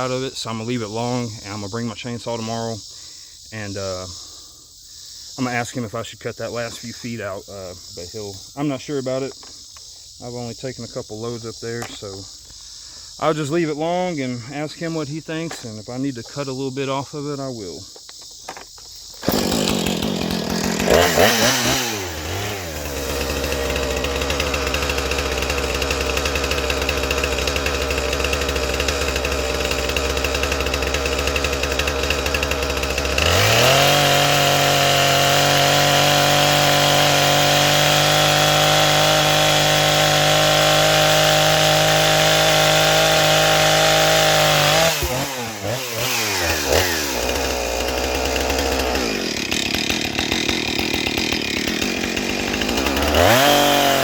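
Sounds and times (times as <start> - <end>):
chainsaw revving and idling: 0.0 - 2.6, 19.1 - 54.0.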